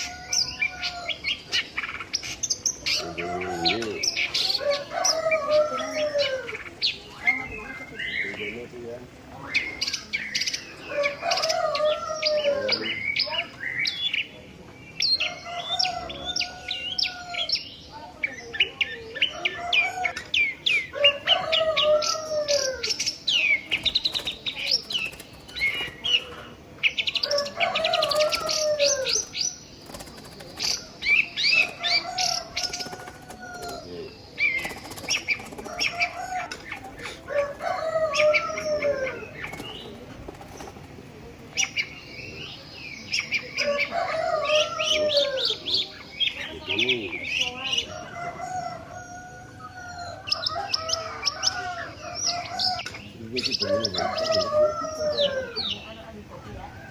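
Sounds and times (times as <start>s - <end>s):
fast high bird chirps: 23.5s - 26.5s, 27.7s - 37.8s, 39.4s - 41.0s.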